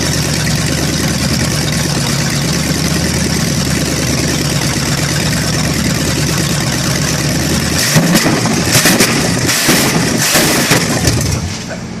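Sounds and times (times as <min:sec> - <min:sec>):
engine revving unevenly: 0:07.3 - 0:11.8.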